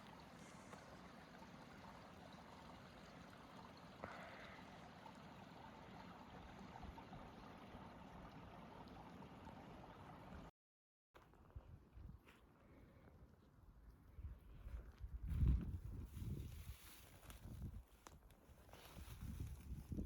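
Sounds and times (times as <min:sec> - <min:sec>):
faint outdoor background noise: 0:00.0 - 0:10.5.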